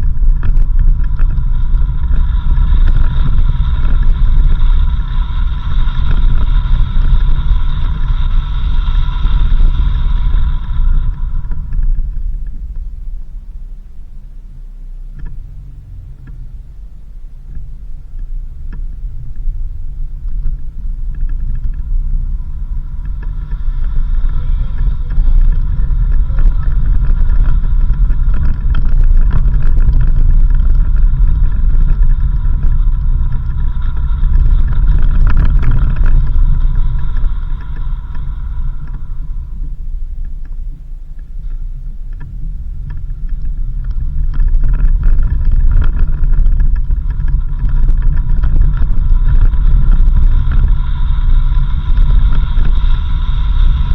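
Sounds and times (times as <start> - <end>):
high whine: 0.0 - 53.9
vehicle low rumble: 0.0 - 53.9.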